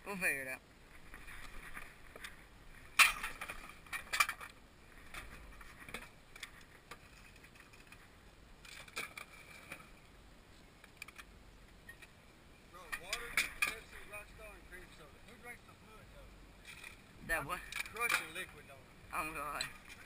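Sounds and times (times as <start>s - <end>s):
objects knocking and rattling: 2.9s - 8.0s.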